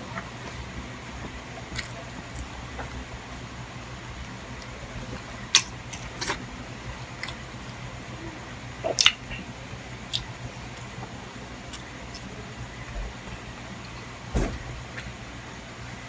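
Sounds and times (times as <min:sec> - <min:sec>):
chewing: 0:00.1 - 0:03.1, 0:04.2 - 0:06.4, 0:07.0 - 0:07.9, 0:08.8 - 0:14.1
mouth clicks and smacks: 0:08.8 - 0:09.4, 0:10.1 - 0:10.9.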